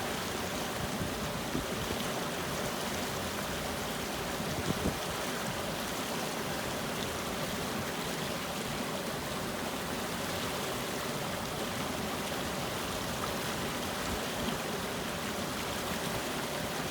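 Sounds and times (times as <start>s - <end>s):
water flowing: 0.0s - 16.9s.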